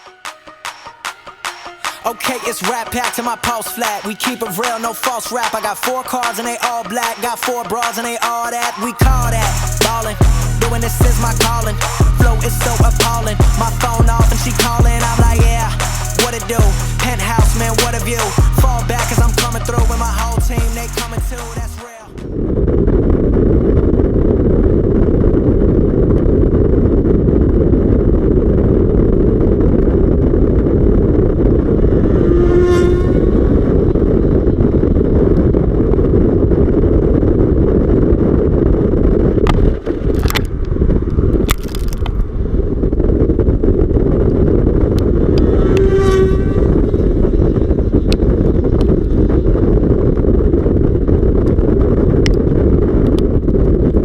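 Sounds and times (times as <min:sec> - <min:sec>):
wind noise on microphone: 0:06.5 - 0:54.0
sport bike engine running: 0:09.0 - 0:21.8, 0:44.8 - 0:49.0.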